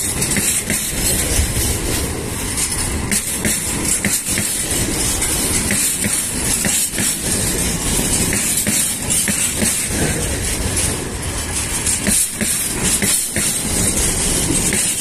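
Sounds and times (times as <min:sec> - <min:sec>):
train wheels rumbling on rails: 0:00.0 - 0:15.0
wheels clacking over rail joints: 0:00.0 - 0:15.0.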